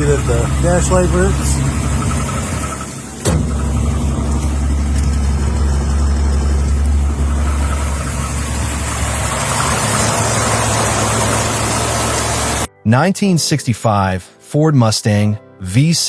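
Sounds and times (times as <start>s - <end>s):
car engine idling: 0.0s - 12.7s.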